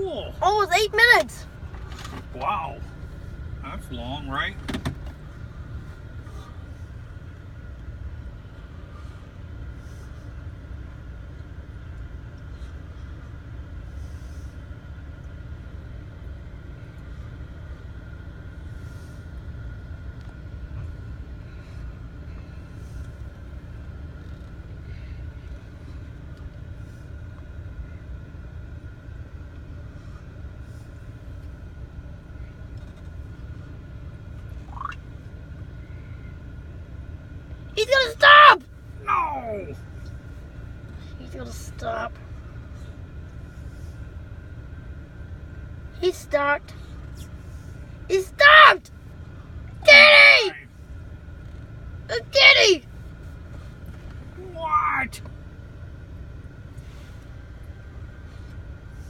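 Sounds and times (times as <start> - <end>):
low rumble inside car cabin: 0.0 - 59.0.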